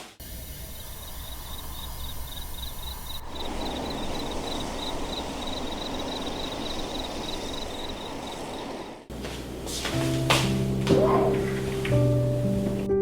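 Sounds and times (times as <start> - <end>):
steady hiss: 0.2 - 9.1
insects chirping: 0.2 - 9.2.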